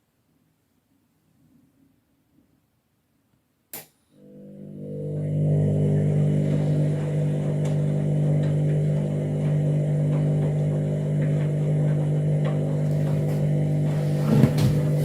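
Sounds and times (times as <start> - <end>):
washing machine motor humming: 4.2 - 15.0.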